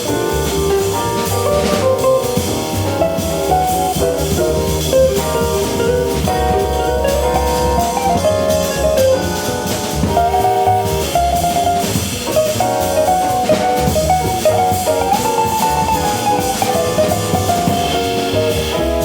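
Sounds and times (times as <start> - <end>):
jazz band playing live: 0.0 - 19.0.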